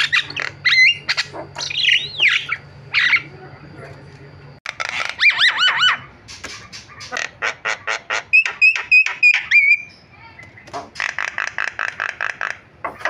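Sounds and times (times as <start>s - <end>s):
bird singing varied song: 0.0s - 3.4s, 8.2s - 12.6s.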